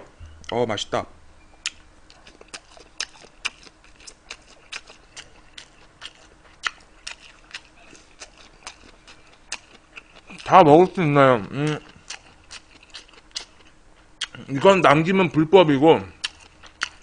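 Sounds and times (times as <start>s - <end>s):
wet chewing mouth clicks: 1.6s - 10.5s, 11.5s - 14.5s, 16.2s - 17.0s.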